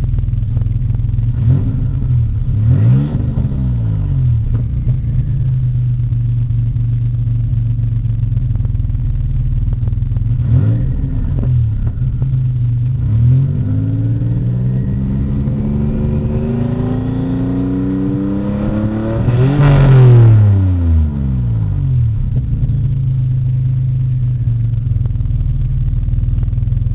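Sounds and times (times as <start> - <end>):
car engine idling and revving: 0.0 - 26.9
faint high whine: 10.6 - 24.8.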